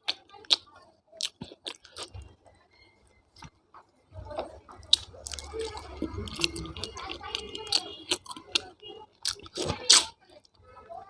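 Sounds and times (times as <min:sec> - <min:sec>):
person chewing and sucking: 0:01.2 - 0:02.3, 0:04.8 - 0:10.2.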